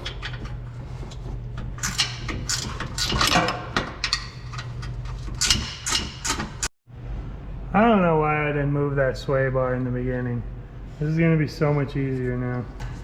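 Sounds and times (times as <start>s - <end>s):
low hum: 6.9s - 12.2s.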